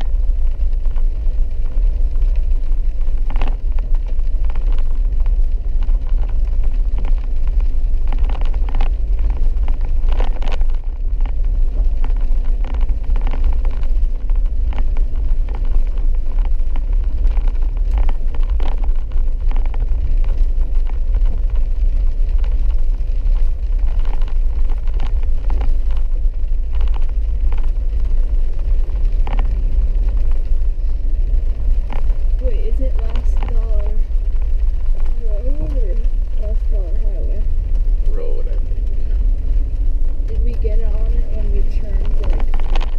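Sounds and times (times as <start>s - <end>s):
engine and tyres rumbling: 0.0s - 42.9s.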